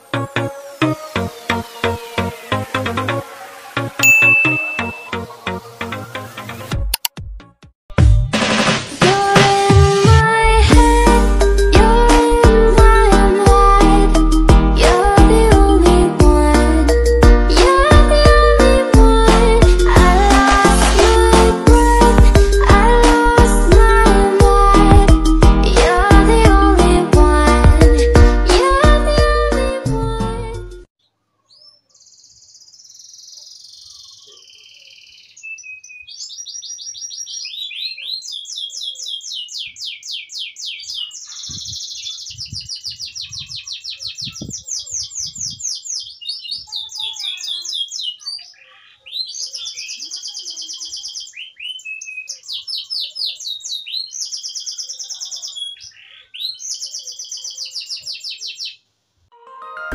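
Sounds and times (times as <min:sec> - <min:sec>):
canary singing trills: 0:04.0 - 0:05.2, 0:31.0 - 0:58.9.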